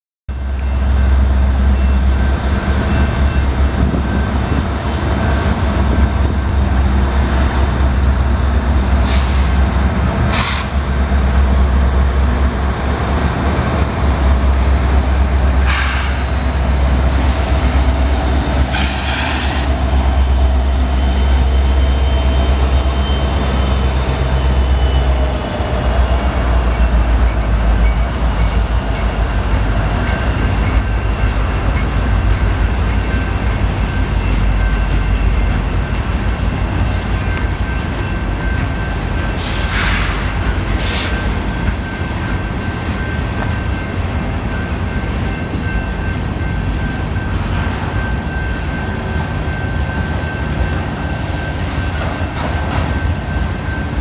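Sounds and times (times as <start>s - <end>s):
freight train diesel rumble: 0.3s - 54.0s
brief hisses: 15.7s - 16.2s
faint high squeal: 18.7s - 32.3s.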